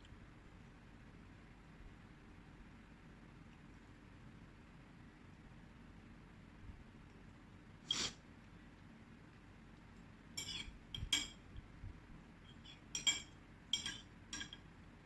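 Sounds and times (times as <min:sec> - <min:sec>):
cutlery clinking against plate: 0:10.4 - 0:11.5, 0:12.5 - 0:14.7.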